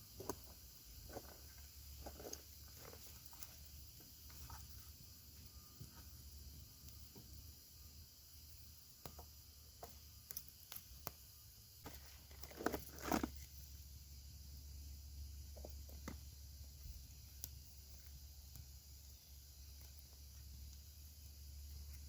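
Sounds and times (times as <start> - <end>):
campfire crackling and popping: 0.0 - 14.0, 15.5 - 22.0.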